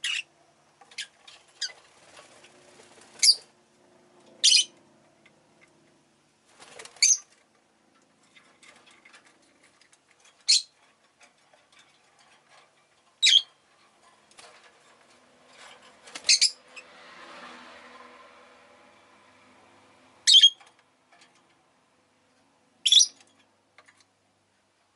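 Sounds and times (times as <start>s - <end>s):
soft clicks and rustles: 0.7s - 16.9s, 20.6s - 24.9s
shrill bird chirps: 4.4s - 4.8s, 7.0s - 7.3s, 10.5s - 10.8s, 13.2s - 13.5s, 16.2s - 16.6s, 20.2s - 20.6s, 22.8s - 23.2s.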